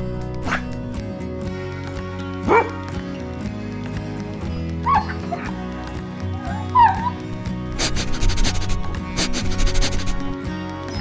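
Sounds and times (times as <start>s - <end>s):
background music: 0.0s - 11.0s
dog yelping: 2.5s - 2.8s, 4.8s - 5.6s, 6.5s - 7.2s.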